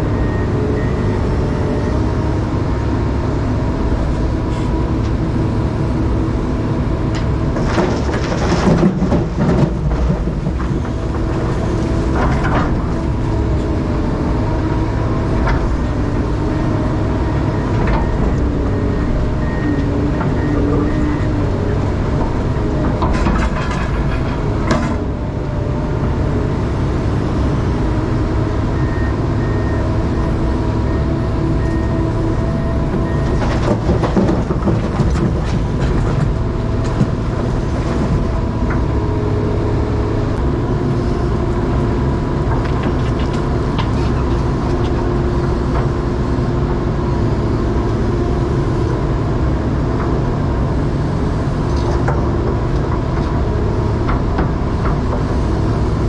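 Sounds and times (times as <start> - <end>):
excavator diesel engine running: 0.0 - 56.0
knocks and clatter: 7.2 - 13.7, 22.0 - 25.2, 32.9 - 39.0.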